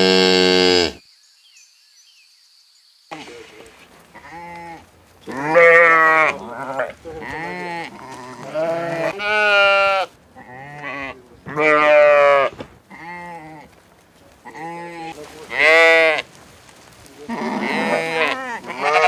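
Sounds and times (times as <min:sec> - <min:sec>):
sheep bleating: 0:04.1 - 0:13.8, 0:14.4 - 0:16.3, 0:17.2 - 0:19.0.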